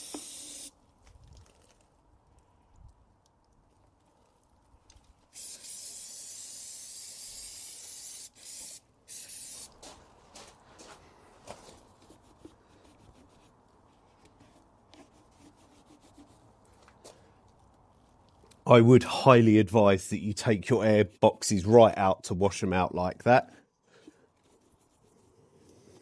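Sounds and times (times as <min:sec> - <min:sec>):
hose spraying water: 0:00.0 - 0:00.7.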